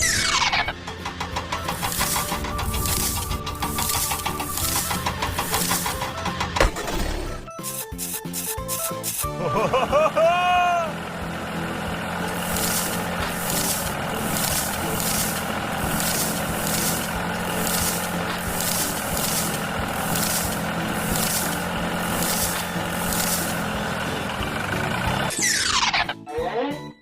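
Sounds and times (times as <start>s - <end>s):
cartoon vehicle engine: 0.0s - 26.4s
pulsing hiss: 12.3s - 23.7s.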